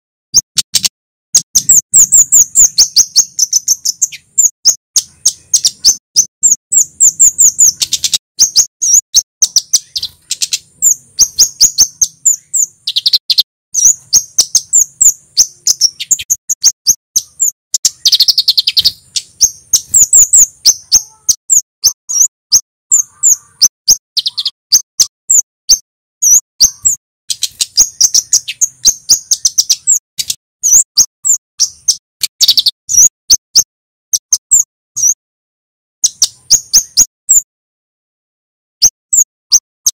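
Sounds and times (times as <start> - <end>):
bird chirping: 0.4 - 35.2, 36.0 - 37.5, 38.8 - 39.9.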